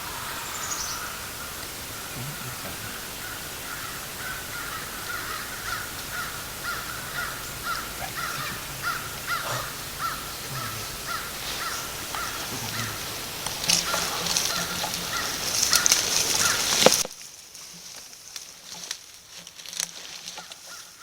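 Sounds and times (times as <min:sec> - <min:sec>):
harsh bird calls: 0:00.0 - 0:17.0
brief rustle: 0:11.5 - 0:21.0.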